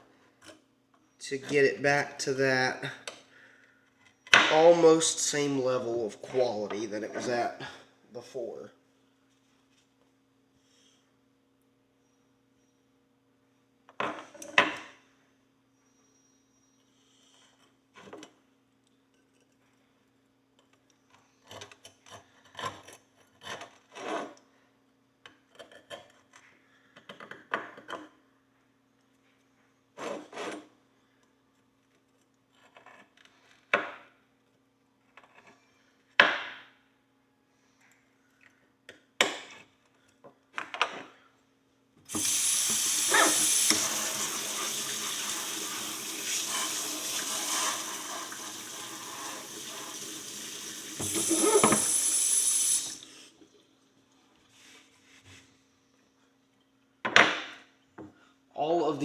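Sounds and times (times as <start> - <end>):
loud water-jet spray: 42.1 - 44.1.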